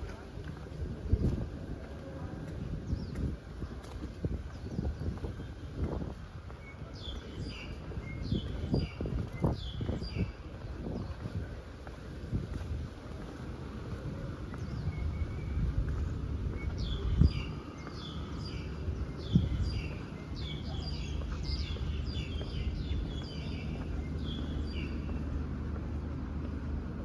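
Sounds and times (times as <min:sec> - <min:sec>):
steady low rumble: 0:00.0 - 0:27.0
songbird singing high chirps: 0:04.3 - 0:11.5, 0:14.1 - 0:25.4.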